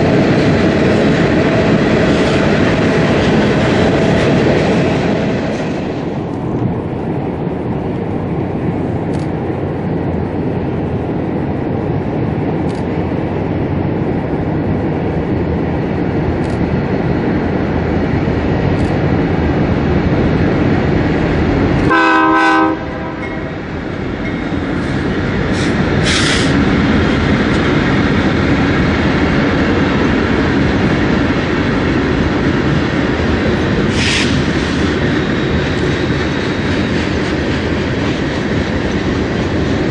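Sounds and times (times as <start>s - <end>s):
train wheels rumbling on rail: 0.0s - 39.9s
train horn note: 21.9s - 23.6s.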